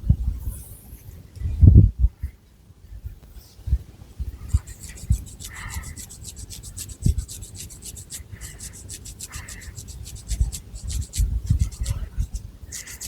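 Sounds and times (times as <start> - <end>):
fingernails scratching hair: 4.5 - 13.0.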